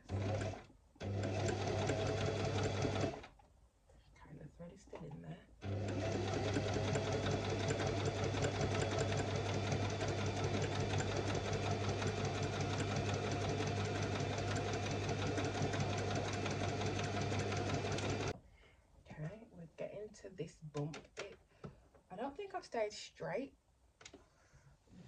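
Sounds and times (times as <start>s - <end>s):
sewing machine motor hum: 0.0s - 3.3s, 5.6s - 18.3s
needle ticking: 5.6s - 18.3s.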